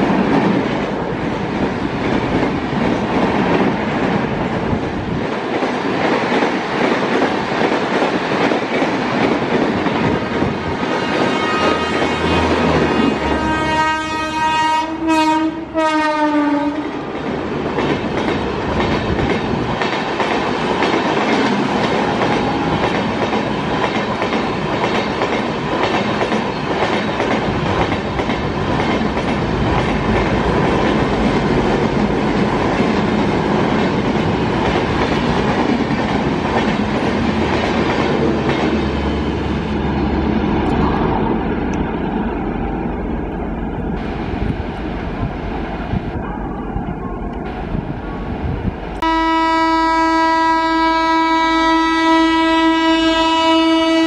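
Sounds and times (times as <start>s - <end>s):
train running on rails: 0.0s - 54.0s
multi-tone train horn: 10.9s - 17.0s, 49.0s - 54.0s.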